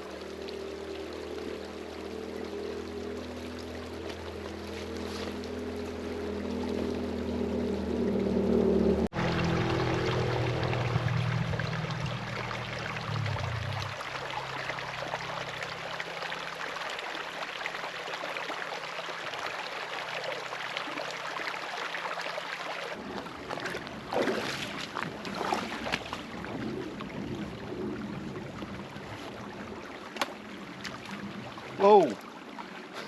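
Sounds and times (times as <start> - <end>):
creek flowing: 0.0 - 33.0
knocks and splashes: 9.1 - 14.7, 23.0 - 27.2, 30.0 - 32.2.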